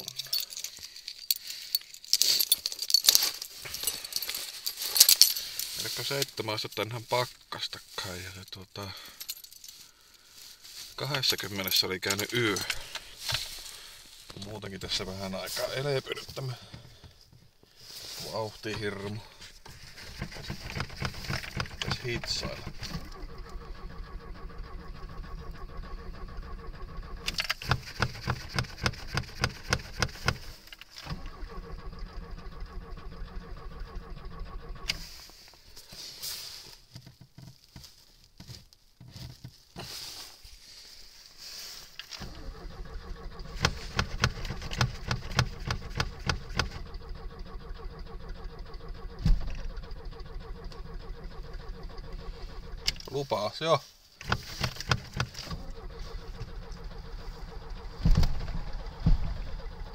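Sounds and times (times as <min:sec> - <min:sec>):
car engine cranking on starter: 0:10.0 - 0:36.8, 0:42.0 - 0:53.6, 0:54.2 - 0:59.9.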